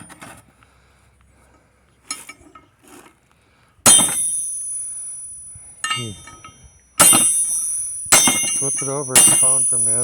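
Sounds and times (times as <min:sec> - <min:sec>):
faint metal clinks: 0:03.9 - 0:10.0
hammer striking metal: 0:03.9 - 0:10.0.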